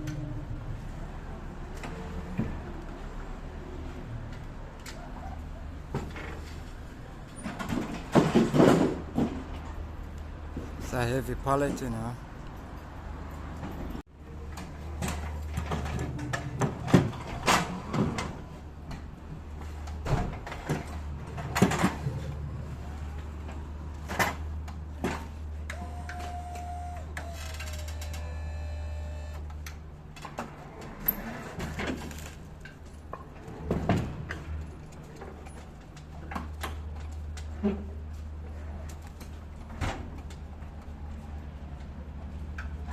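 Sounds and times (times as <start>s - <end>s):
pallet knocks and clatter: 7.5s - 9.6s.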